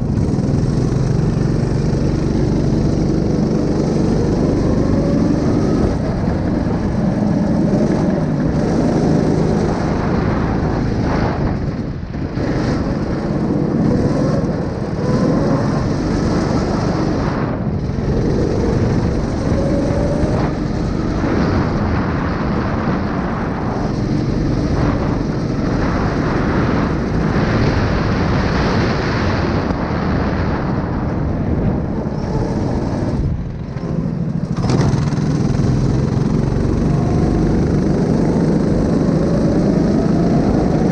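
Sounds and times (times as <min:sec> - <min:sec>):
small engine running: 0:00.0 - 0:11.4, 0:32.0 - 0:40.9.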